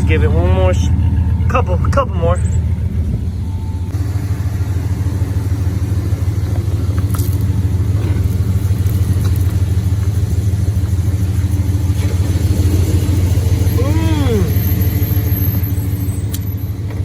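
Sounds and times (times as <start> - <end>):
truck engine rumbling: 0.0 - 17.0.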